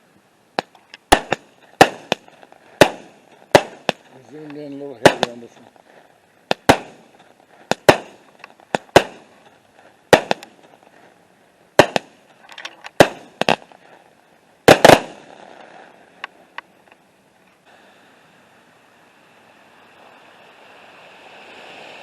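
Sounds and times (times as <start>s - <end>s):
fireworks bangs: 0.6s - 11.1s, 11.7s - 13.9s, 14.6s - 16.2s
small fireworks pops: 0.6s - 17.0s.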